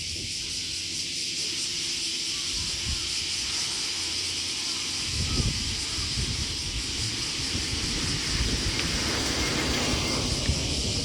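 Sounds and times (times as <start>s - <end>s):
steady high hiss: 0.0s - 11.0s
wind buffeting microphone: 2.5s - 3.6s, 4.9s - 11.0s.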